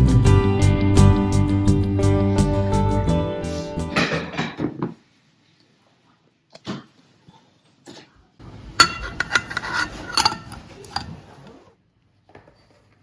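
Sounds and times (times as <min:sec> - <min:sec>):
dishes and utensils clattering: 0:08.6 - 0:11.4.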